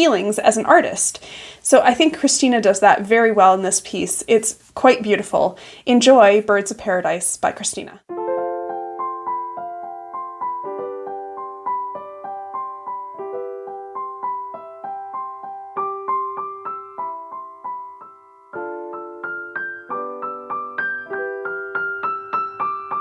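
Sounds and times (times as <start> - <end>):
solo piano melody: 8.0 - 23.0.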